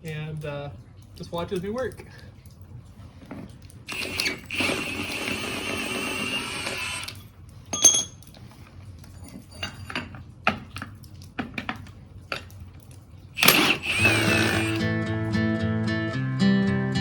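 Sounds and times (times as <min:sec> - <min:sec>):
light metallic clinks: 0:07.2 - 0:08.4
metallic clatter: 0:07.7 - 0:08.4
acoustic guitar music: 0:14.8 - 0:17.0.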